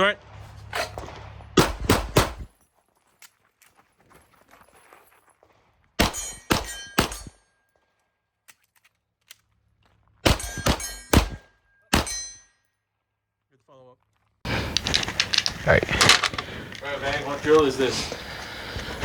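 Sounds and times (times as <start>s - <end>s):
pistol shots: 0.8s - 2.5s, 6.0s - 7.4s, 10.2s - 12.4s.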